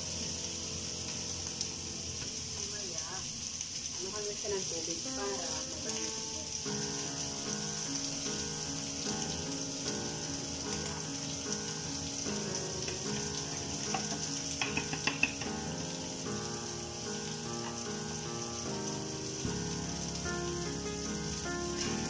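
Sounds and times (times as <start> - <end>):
food sizzling in a wok: 0.0 - 22.0
background music: 5.1 - 22.0
utensils clinking: 12.9 - 15.8.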